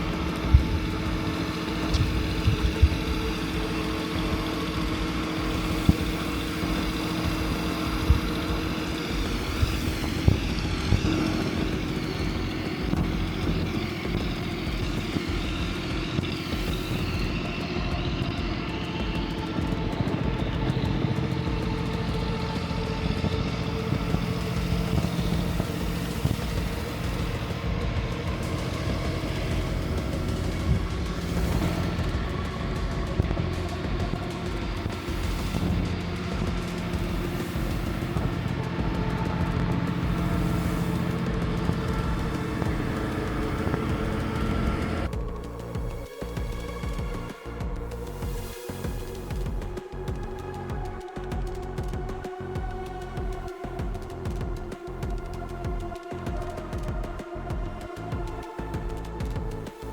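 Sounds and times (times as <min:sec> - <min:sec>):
vehicle engines running: 0:00.0 - 0:59.9.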